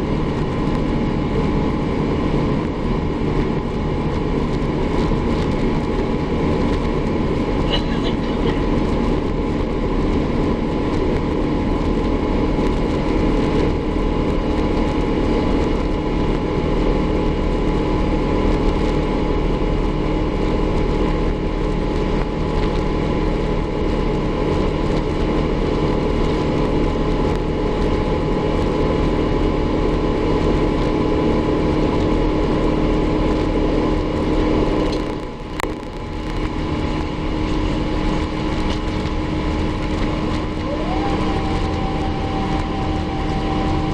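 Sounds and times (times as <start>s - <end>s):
airplane cabin engine roar: 0.0s - 43.9s.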